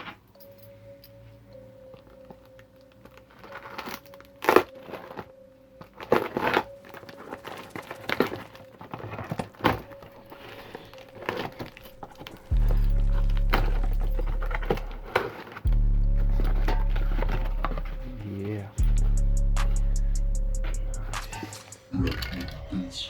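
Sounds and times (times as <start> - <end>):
crinkling and crackling handling: 1.8 - 18.8
loud bass-heavy music: 12.5 - 23.0.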